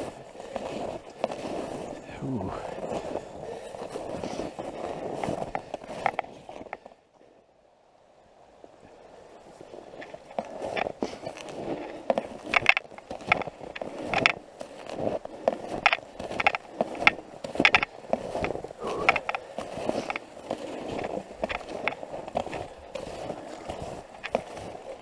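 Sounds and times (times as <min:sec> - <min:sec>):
snowshoe footsteps crunching snow: 0:00.0 - 0:07.0, 0:09.2 - 0:25.0.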